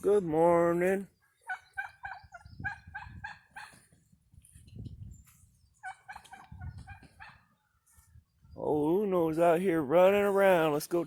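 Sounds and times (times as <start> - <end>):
turkeys calling: 1.0 - 4.2, 5.6 - 8.1.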